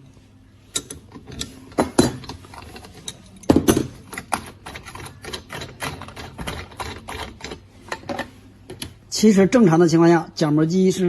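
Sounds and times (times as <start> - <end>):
metal parts clicking and knocking: 0.7 - 9.0.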